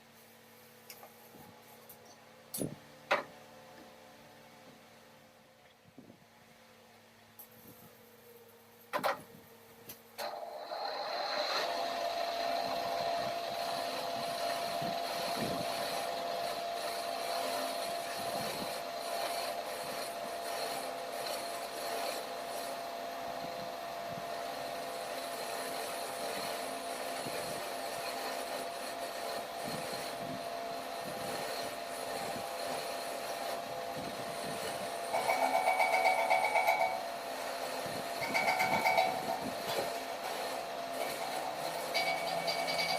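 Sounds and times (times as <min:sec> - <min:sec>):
workshop machine whining and cutting: 0:08.9 - 0:42.9.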